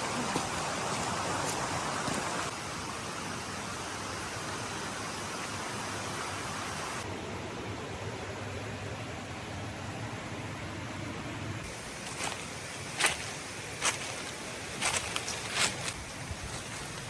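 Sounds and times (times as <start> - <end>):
running water rushing: 0.0 - 7.1, 11.7 - 17.0.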